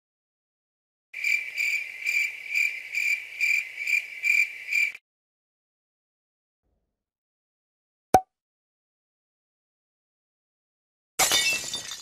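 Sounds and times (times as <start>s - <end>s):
cricket chirping: 1.2s - 5.0s.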